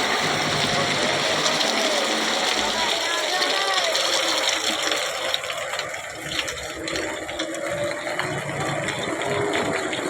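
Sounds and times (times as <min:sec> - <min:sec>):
steady water noise: 0:00.0 - 0:10.0.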